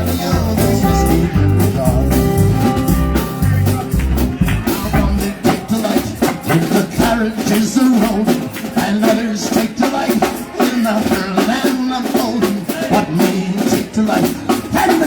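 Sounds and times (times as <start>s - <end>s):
bending melodic lead line: 0.0s - 5.4s
drum kit beat: 0.0s - 15.0s
live band playing: 0.0s - 15.0s.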